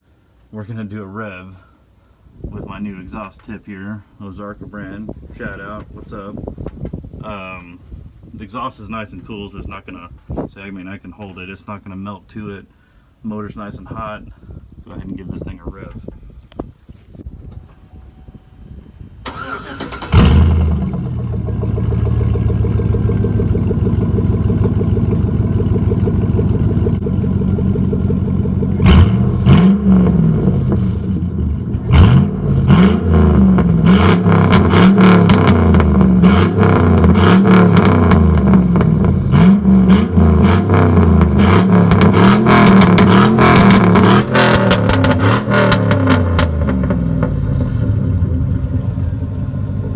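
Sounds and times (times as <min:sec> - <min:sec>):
unmuffled pickup engine revving: 0:17.2 - 0:49.9.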